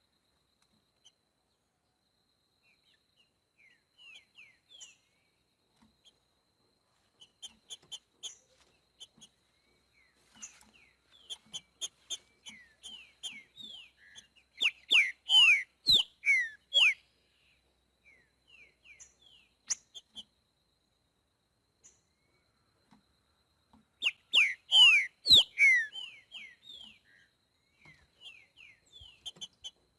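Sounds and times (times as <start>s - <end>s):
bird singing whistled notes: 12.1s - 17.1s, 24.0s - 29.5s.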